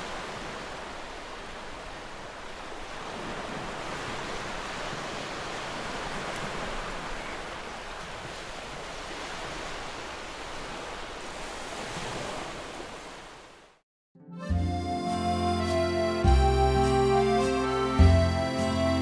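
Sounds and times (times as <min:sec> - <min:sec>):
waves breaking on beach: 0:00.0 - 0:13.8.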